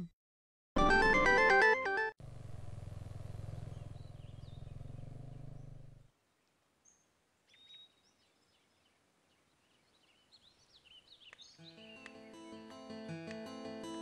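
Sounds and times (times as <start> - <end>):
birds chirping: 3.2 - 12.7.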